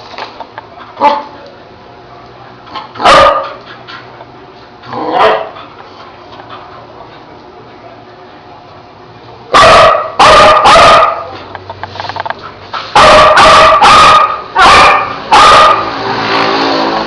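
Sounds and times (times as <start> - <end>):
dog barking loudly: 3.0 - 3.6, 5.0 - 5.6, 9.5 - 11.4, 12.9 - 16.0.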